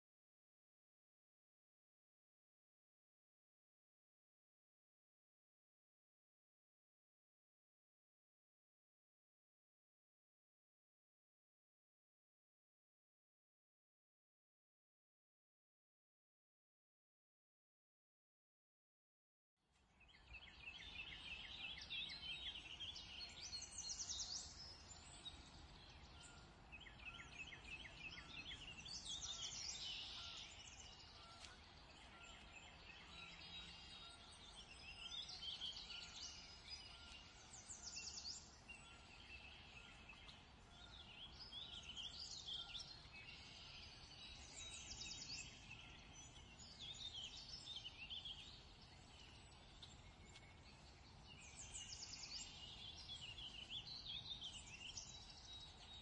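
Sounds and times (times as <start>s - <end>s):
small birds chirping and trilling: 19.8s - 56.0s.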